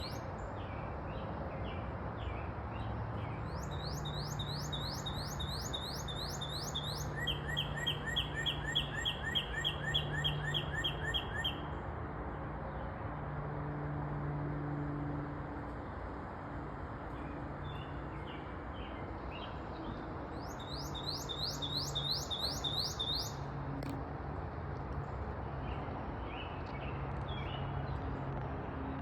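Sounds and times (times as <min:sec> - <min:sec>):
bird singing: 0:00.0 - 0:00.3, 0:03.2 - 0:11.7, 0:17.6 - 0:23.4.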